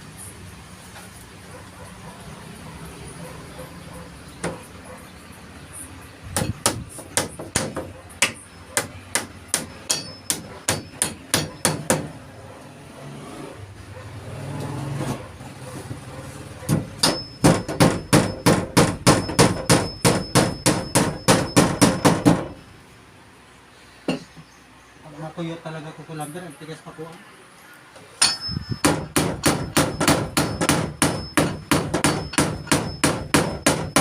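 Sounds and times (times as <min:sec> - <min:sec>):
high ringing tone: 0:17.0 - 0:18.4, 0:28.2 - 0:28.8, 0:29.6 - 0:34.0
hammer driving nails into wood: 0:28.2 - 0:34.0.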